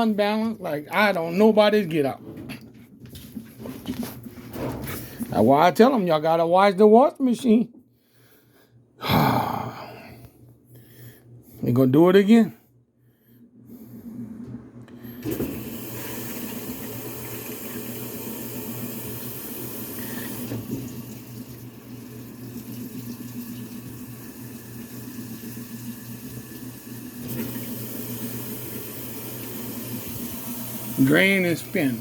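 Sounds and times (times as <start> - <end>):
washing machine humming: 0.0 - 32.0
water rushing into washing machine: 15.1 - 32.0.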